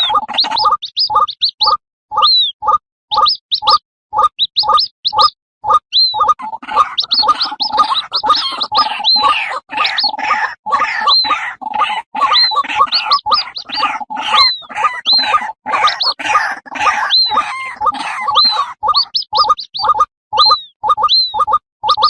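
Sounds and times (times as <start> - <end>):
chicks high whistled notes: 0.0 - 22.0
bird rapid short calls: 6.0 - 21.4.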